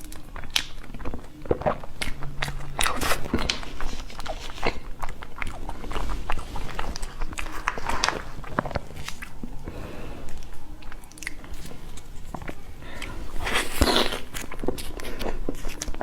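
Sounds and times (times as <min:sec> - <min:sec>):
person chewing food: 0:00.0 - 0:16.0.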